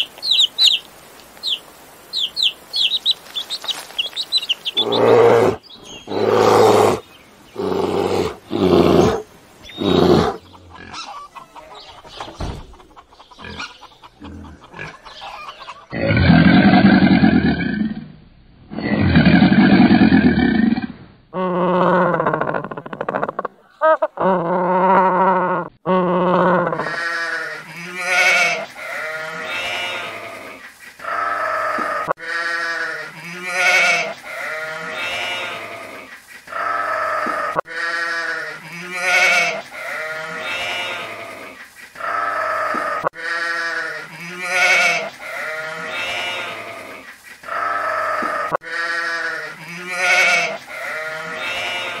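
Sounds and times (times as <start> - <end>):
sheep bleating: 26.6 - 52.0.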